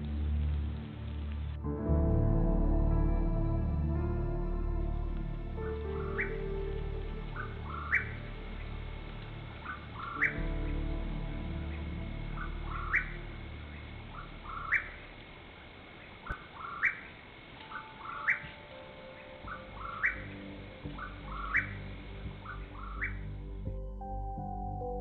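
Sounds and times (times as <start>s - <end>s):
soft background music: 0.0s - 25.0s
bird call with upward whistle: 6.0s - 6.4s, 7.4s - 8.2s, 9.7s - 10.4s, 12.4s - 13.2s, 14.2s - 15.0s, 17.7s - 18.6s, 19.5s - 20.4s, 21.0s - 21.8s, 22.5s - 23.2s.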